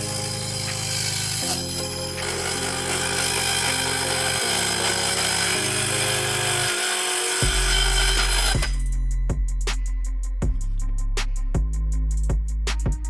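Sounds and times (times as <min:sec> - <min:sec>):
circular saw cutting: 0:00.0 - 0:09.0
background music with bass: 0:00.0 - 0:13.0
drum beat: 0:07.4 - 0:09.8, 0:12.3 - 0:13.0.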